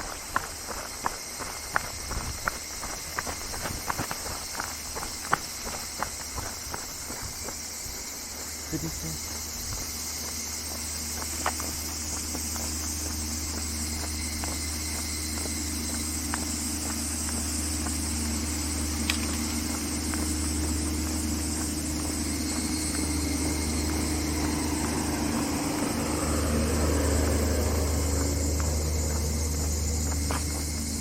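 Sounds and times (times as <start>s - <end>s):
light footsteps ticking: 0.0s - 31.0s
low rumble: 17.2s - 31.0s.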